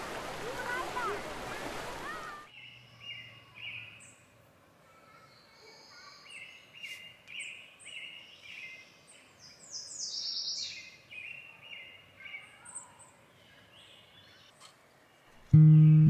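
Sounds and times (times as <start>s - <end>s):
small birds chirping: 2.5s - 4.3s, 5.0s - 16.0s.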